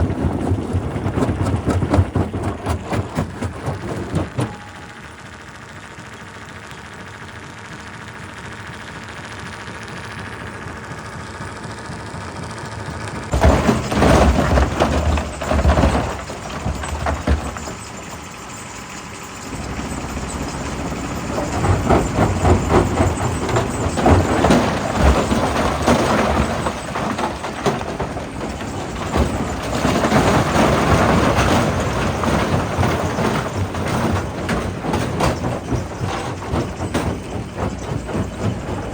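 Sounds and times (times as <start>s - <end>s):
rock crushing and rumbling: 0.0s - 5.0s, 13.3s - 38.9s
machine hum: 3.3s - 33.8s, 37.2s - 38.9s.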